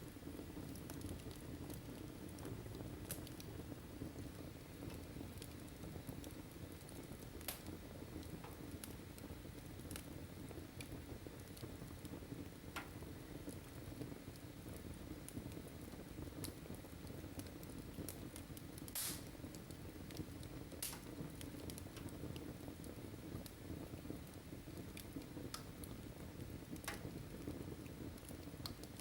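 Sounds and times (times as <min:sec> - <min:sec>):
fire crackling and popping: 0:00.0 - 0:29.0
fire rumbling: 0:00.0 - 0:29.0.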